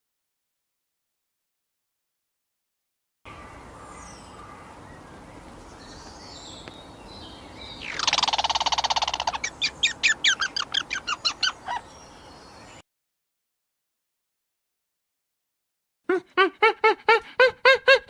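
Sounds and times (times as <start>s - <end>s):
bird calling with rattling trill: 3.3s - 12.8s.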